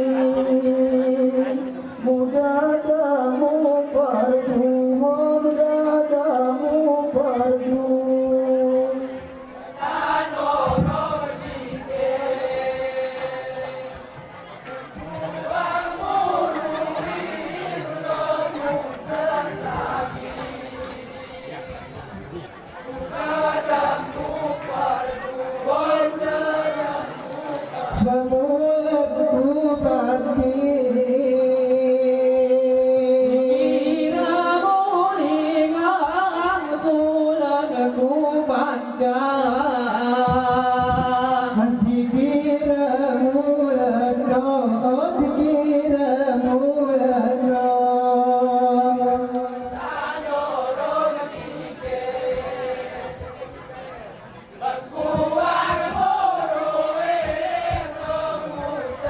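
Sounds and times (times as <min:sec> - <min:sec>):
men singing in unison: 0:00.0 - 0:14.3, 0:14.9 - 0:21.9, 0:22.9 - 0:53.9, 0:54.6 - 0:59.0.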